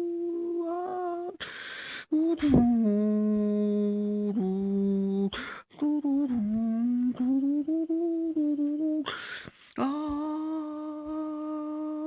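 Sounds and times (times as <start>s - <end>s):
person humming: 0.0s - 1.5s, 2.1s - 12.0s.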